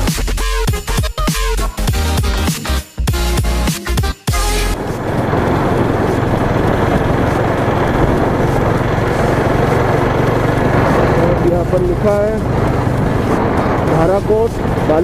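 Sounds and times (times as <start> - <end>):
wind and road noise: 4.4 - 15.0
motorcycle engine hum: 4.5 - 15.0.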